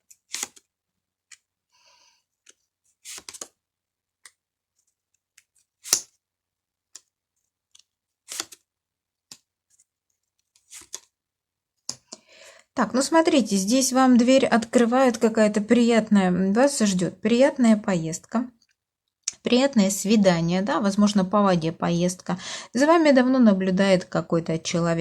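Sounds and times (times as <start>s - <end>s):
cards snapping and rustling: 0.1s - 0.7s, 2.4s - 3.6s, 4.2s - 6.2s, 7.8s - 8.6s, 9.3s - 11.1s.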